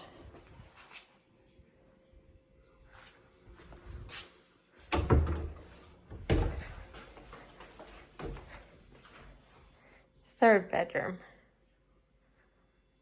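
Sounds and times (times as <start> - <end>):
cabinet door opening and shutting: 4.9 - 7.1.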